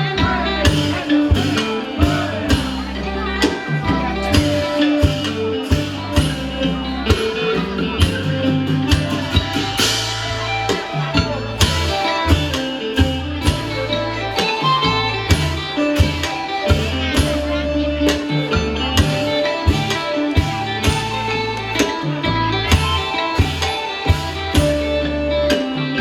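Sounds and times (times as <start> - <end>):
folk ensemble melody: 0.0 - 26.0
steady drum beat: 0.0 - 26.0
sustained bass notes: 0.0 - 26.0.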